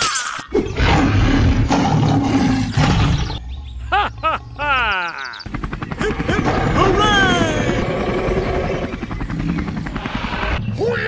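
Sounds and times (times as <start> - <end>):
dinosaur roar: 0.5 - 3.4, 6.0 - 9.0
squeaky calls: 4.2 - 6.2.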